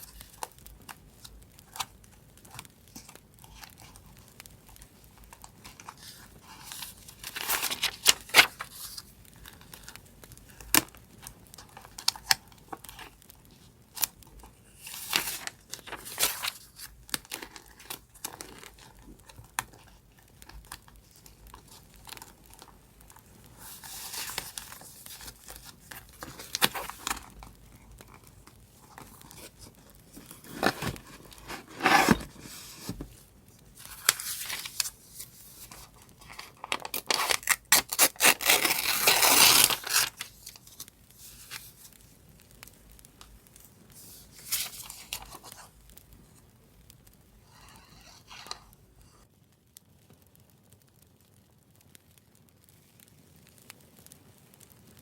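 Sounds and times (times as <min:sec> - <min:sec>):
paper rustling and clicking: 0:00.0 - 0:42.0, 0:43.2 - 0:45.7, 0:47.5 - 0:49.2
paper tearing: 0:30.2 - 0:33.0, 0:35.6 - 0:40.8.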